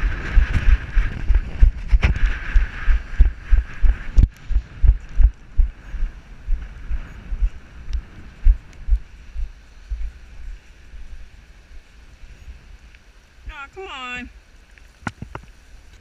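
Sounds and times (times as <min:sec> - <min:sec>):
rapid low thumping: 0:00.0 - 0:10.2
steady hiss: 0:00.0 - 0:16.0.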